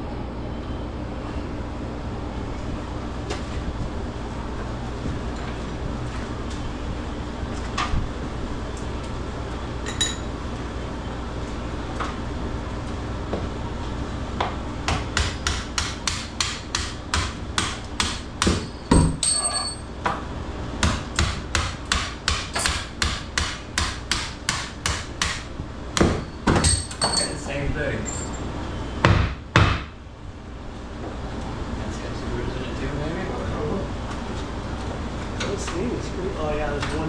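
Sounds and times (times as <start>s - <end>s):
hammer striking metal: 15.2s - 19.8s, 20.8s - 27.5s.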